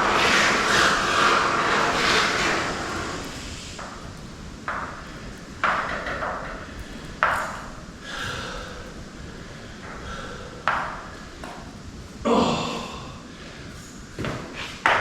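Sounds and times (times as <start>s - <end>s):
spray foam can hissing: 0.0s - 4.3s.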